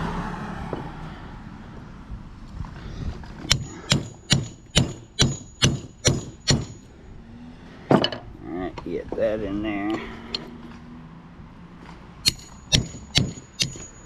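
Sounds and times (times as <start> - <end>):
hammer striking metal: 3.5 - 6.9, 12.2 - 14.0.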